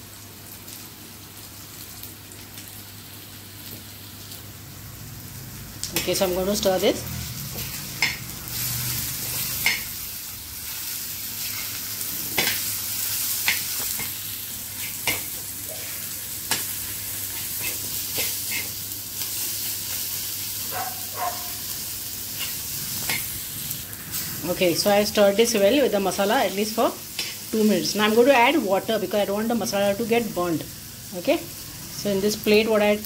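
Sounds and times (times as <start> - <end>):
masala sizzling on a pan: 0.0 - 33.0
metal spatula scraping a pan: 17.3 - 18.8.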